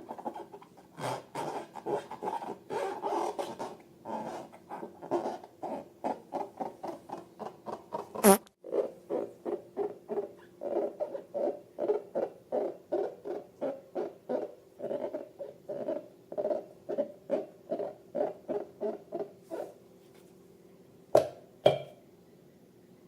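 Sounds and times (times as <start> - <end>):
balloons squeaking with slime: 8.2 - 8.5.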